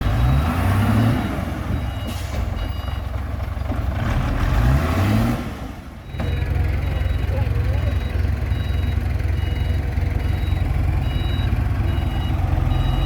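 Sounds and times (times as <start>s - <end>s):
truck engine revving: 0.0s - 13.0s
short reversing beeps: 6.0s - 13.0s.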